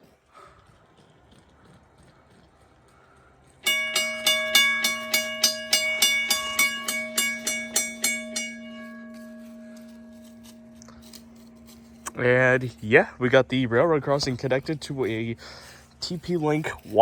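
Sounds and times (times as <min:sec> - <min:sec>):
railroad crossing bell ringing: 0:03.6 - 0:16.0.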